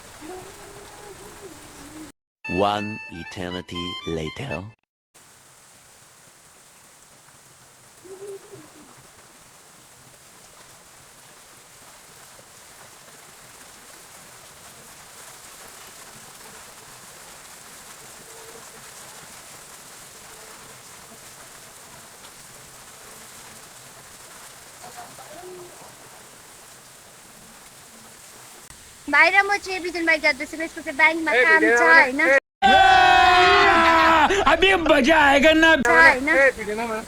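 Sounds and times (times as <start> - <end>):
low cooing bird call: 0.0 - 2.1, 7.8 - 9.8, 24.2 - 28.3
rain hiss: 0.0 - 2.1, 5.2 - 32.4, 35.8 - 37.0.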